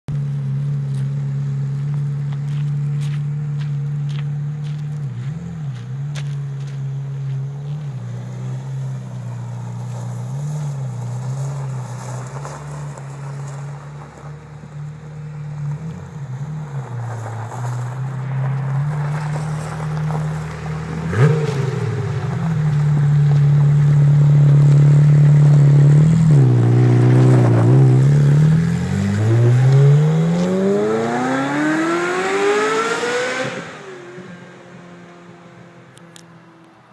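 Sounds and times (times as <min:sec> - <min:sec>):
sports car engine revving: 0:14.8 - 0:35.9.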